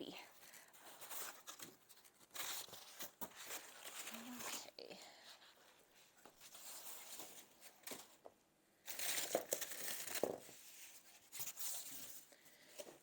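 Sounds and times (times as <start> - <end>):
packing material crinkling: 0.4 - 4.8, 8.8 - 12.3.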